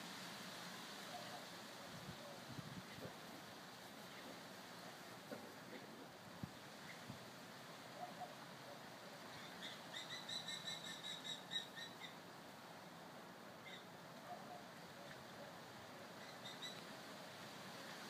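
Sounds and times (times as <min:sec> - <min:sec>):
faint steady hiss: 0:00.0 - 0:18.0
bird calling: 0:08.0 - 0:12.2, 0:13.6 - 0:17.0.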